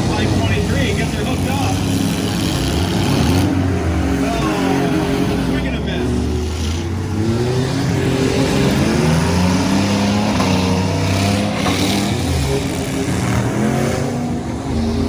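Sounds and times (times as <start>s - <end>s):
truck engines revving: 0.0s - 15.0s.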